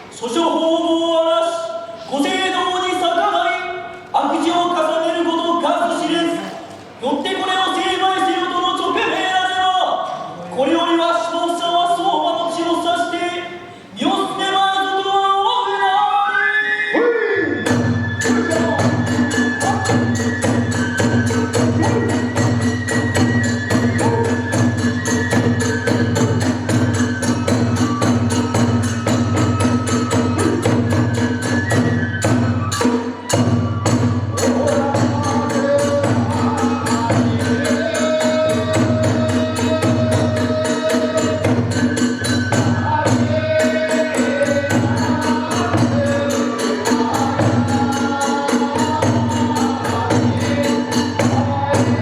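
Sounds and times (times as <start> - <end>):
drum beat: 17.7 - 52.0.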